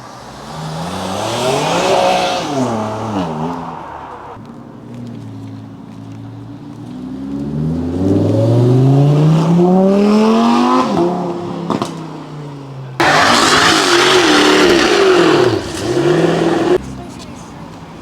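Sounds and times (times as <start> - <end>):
car engine accelerating: 6.8 - 16.8
loud rough engine: 13.0 - 16.8.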